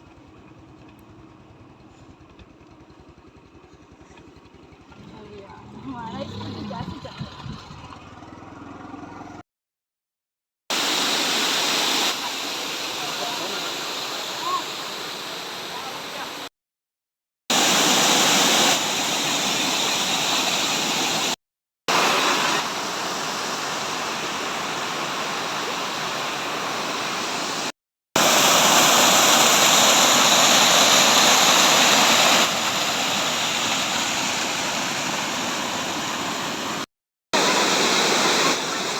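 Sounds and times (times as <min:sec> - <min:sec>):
waterfall rushing: 0:10.7 - 0:16.5, 0:17.5 - 0:36.8, 0:37.4 - 0:38.9.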